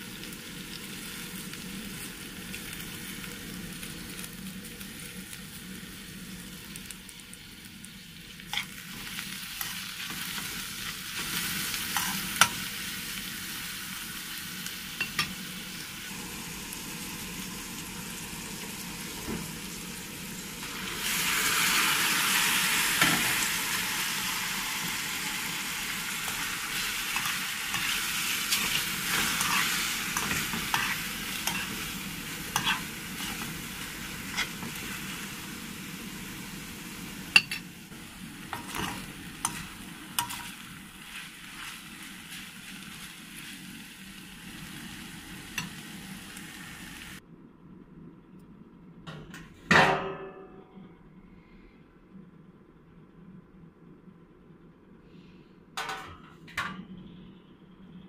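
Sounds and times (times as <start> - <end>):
food sizzling in a wok: 0.0 - 47.2
metal spoon scraping a pan: 26.3 - 33.6, 34.2 - 34.9, 38.5 - 41.8.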